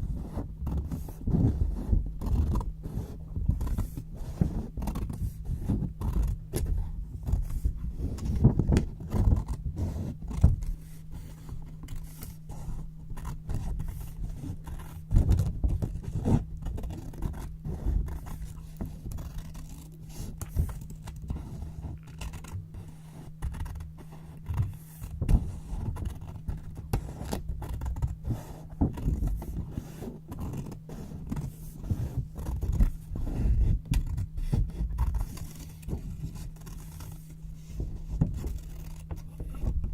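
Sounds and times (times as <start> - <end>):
faint low hum: 0.0 - 39.9
scissors cutting paper: 8.1 - 37.2, 38.2 - 39.7.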